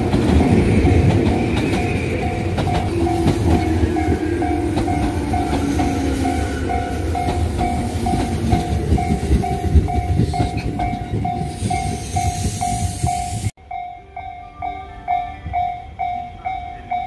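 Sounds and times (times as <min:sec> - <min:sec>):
passing train rumble and clatter: 0:00.0 - 0:17.0.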